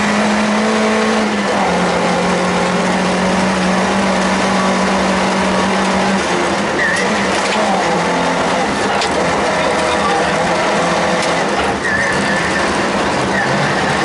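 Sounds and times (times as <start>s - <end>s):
car engine running at high revs: 0.0s - 14.0s
road noise: 0.0s - 14.0s.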